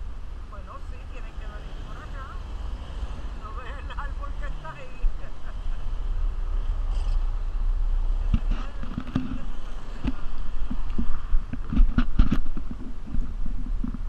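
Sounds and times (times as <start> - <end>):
wind rumbling on microphone: 6.3 - 14.0.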